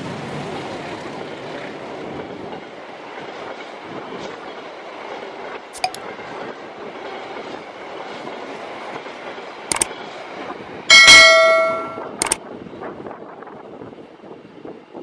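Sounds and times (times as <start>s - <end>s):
train wheels on rails: 0.0s - 15.0s
mouse click sound effect: 5.8s - 6.0s
notification bell ding: 10.9s - 12.2s.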